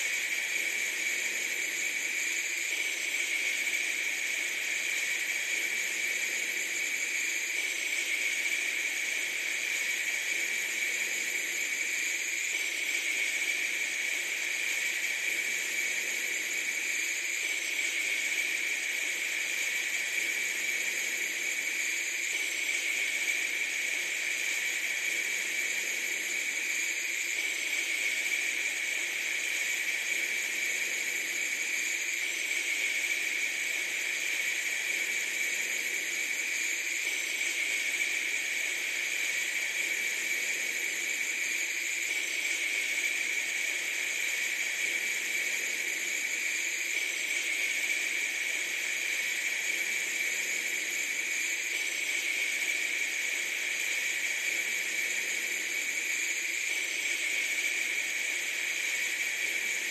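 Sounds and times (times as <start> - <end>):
steady high hiss: 0.0 - 59.9.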